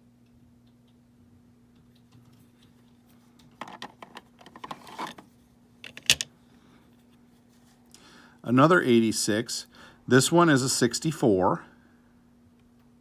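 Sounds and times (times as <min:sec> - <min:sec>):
plastic rubbing: 0:03.6 - 0:05.3.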